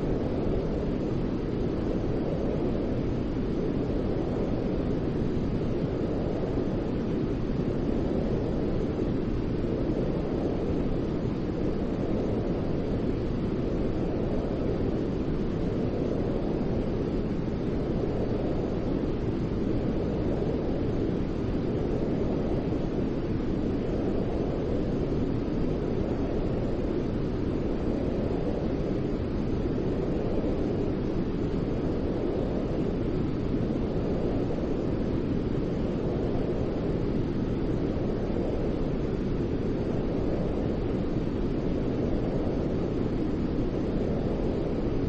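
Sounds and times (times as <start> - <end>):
steady white noise hiss: 0.0 - 45.0.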